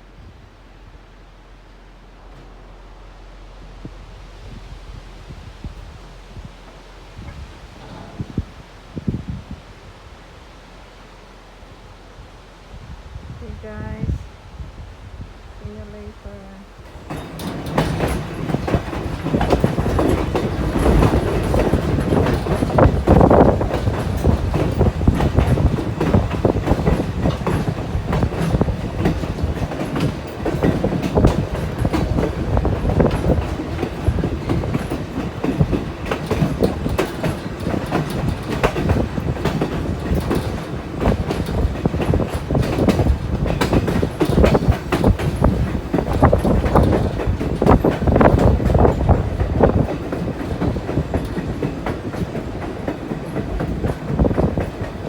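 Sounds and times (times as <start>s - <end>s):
train rumbling: 0.0s - 55.0s
wheels clicking on rails: 5.8s - 8.7s, 16.7s - 55.0s.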